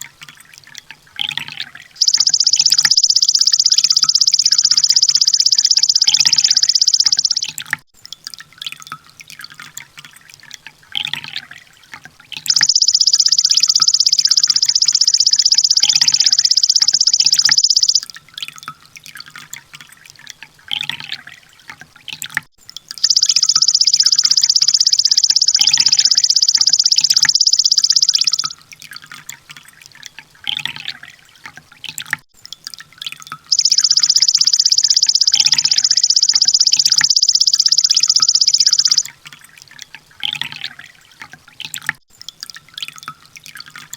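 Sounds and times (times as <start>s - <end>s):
bird rapid high trills: 2.0s - 7.6s, 12.5s - 18.0s, 23.0s - 28.5s, 33.5s - 39.1s
bird short chirps: 2.0s - 7.7s, 12.5s - 18.0s, 23.0s - 28.6s, 33.5s - 39.1s.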